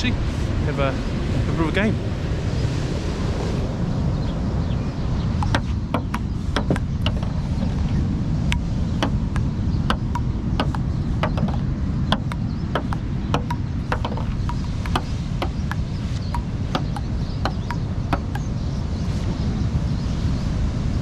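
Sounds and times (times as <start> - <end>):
wind buffeting microphone: 0.0 - 21.0
sharp irregular clicks: 5.4 - 7.9, 8.5 - 18.5.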